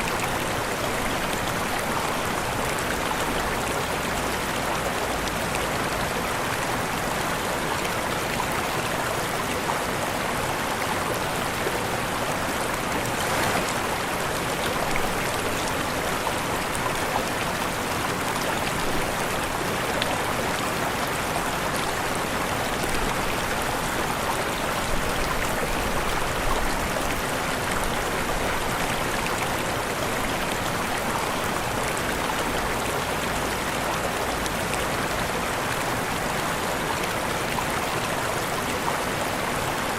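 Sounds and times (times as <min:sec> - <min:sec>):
waterfall splashing: 0:11.5 - 0:31.8.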